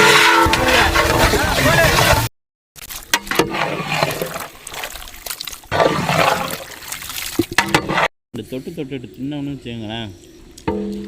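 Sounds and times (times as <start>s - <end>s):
water sloshing and splashing: 0.0s - 8.1s.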